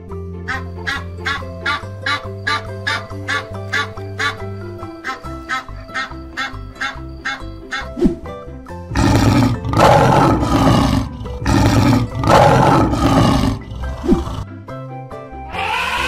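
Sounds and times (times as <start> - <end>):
light background music: 0.0 - 16.0
lion roaring: 8.9 - 14.4.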